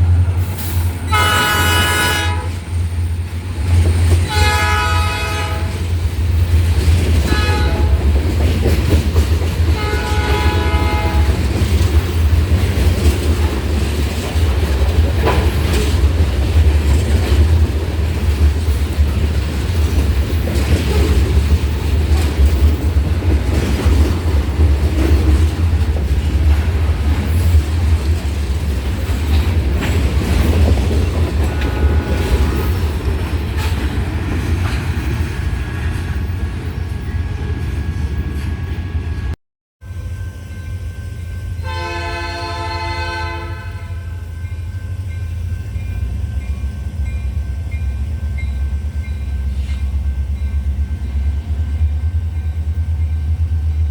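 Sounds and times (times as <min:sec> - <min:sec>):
train wheels rumbling on rail: 0:00.0 - 0:53.9
locomotive horn blasts: 0:01.0 - 0:02.6, 0:04.2 - 0:05.9, 0:07.2 - 0:08.1, 0:09.8 - 0:11.4, 0:31.4 - 0:32.5, 0:41.5 - 0:44.4.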